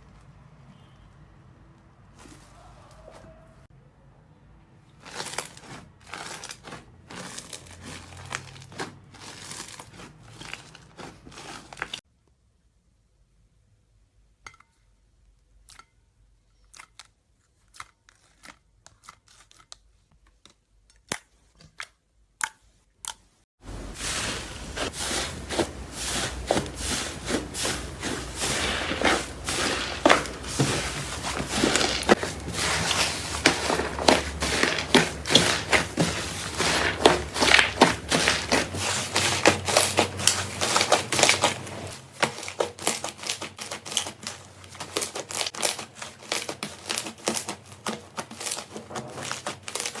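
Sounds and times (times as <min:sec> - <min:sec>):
slime squeezed crackling: 0:23.7 - 0:50.0.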